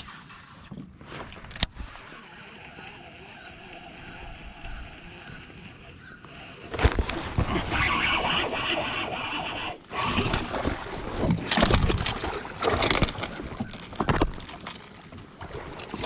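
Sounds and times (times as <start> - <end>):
water sloshing and splashing: 6.7 - 16.0.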